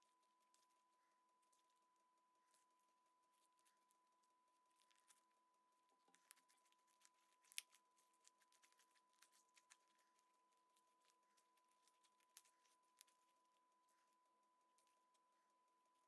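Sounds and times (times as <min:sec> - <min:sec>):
faint high whine: 0:00.0 - 0:16.0.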